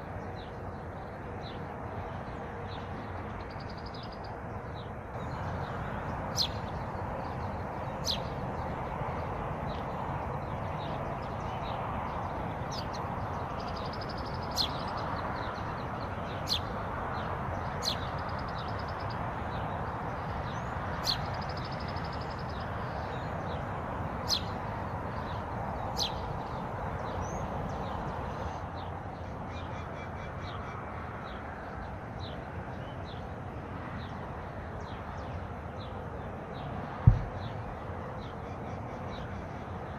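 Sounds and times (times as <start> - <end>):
wild birds calling: 3.4 - 30.9.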